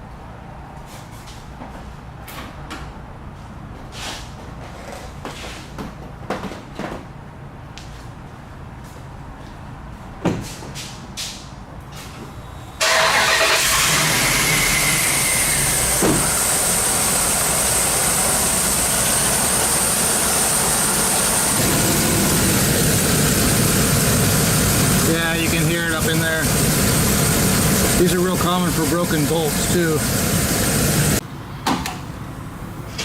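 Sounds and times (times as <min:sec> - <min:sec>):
engine starting and idling: 0:12.8 - 0:31.2.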